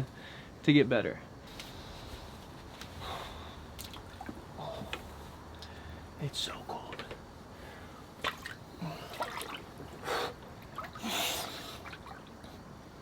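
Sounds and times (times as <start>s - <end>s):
man breathing hard: 3.0s - 3.7s, 10.0s - 11.9s
water splashes and drips: 3.7s - 5.1s, 8.2s - 10.0s, 10.6s - 12.6s.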